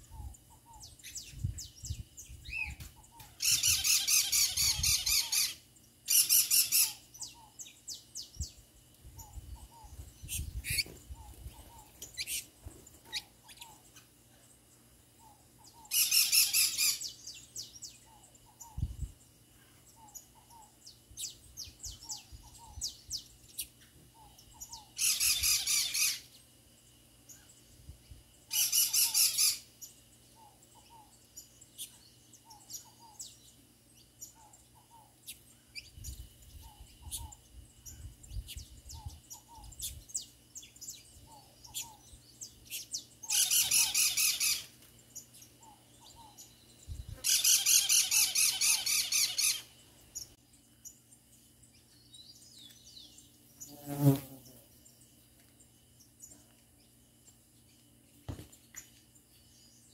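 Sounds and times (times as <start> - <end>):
harsh bird squawks: 47.2 - 49.7.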